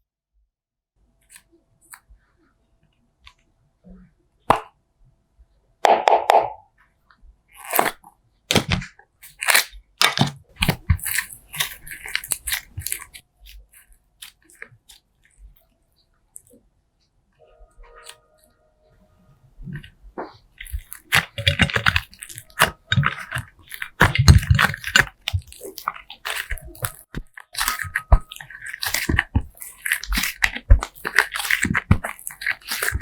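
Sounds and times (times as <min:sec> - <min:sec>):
slime squished by hand: 0:07.5 - 0:15.6, 0:19.6 - 0:33.0.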